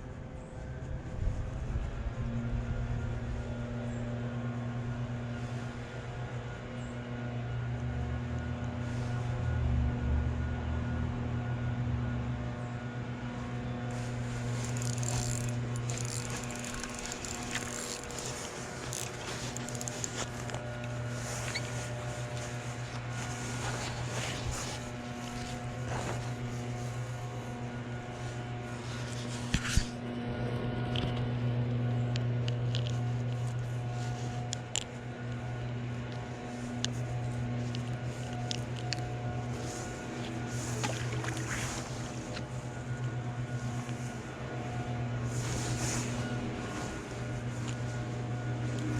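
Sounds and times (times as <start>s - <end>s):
small motor humming: 1.8s - 48.9s
handling rustles: 13.8s - 29.9s, 32.8s - 48.9s.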